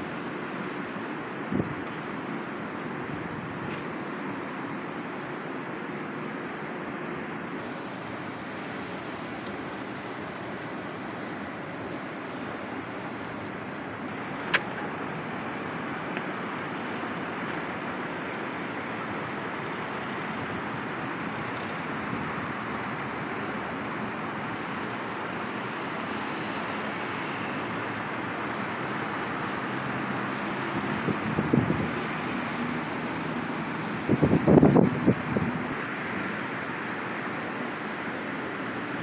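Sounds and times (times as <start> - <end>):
city street traffic: 0.0 - 39.0
sharp click: 14.1 - 15.1.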